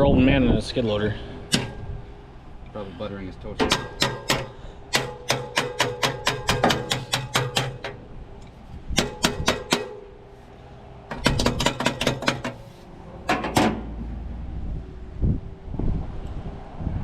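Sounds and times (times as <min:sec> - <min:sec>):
hammer striking metal: 0:01.5 - 0:01.9, 0:03.6 - 0:08.1, 0:08.9 - 0:10.2, 0:11.1 - 0:12.6.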